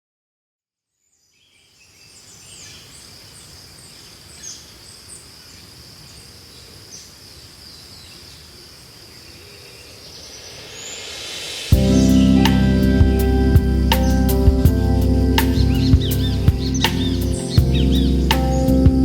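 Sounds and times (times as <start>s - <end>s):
low rumbling background: 11.7s - 19.0s.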